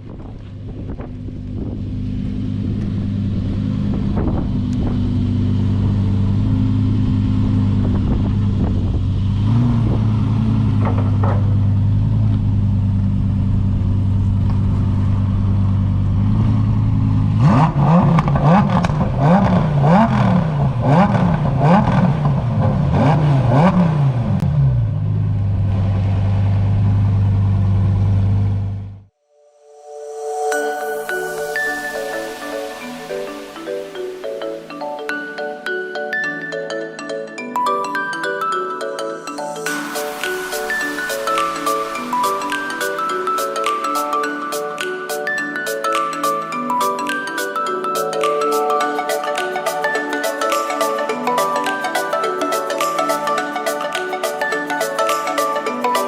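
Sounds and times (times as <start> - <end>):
car engine idling and revving: 0.0 - 29.1.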